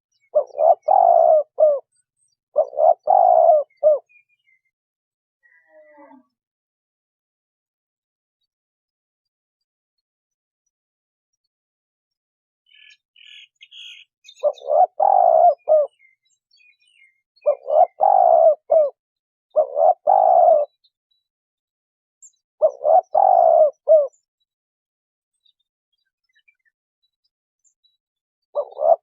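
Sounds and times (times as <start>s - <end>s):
small bird chirps: 0.1s - 4.8s, 12.6s - 21.3s, 22.2s - 24.6s, 25.3s - 29.0s
dove cooing: 0.3s - 1.9s, 2.6s - 4.1s, 14.4s - 16.1s, 17.4s - 20.7s, 22.6s - 24.1s, 28.6s - 29.0s.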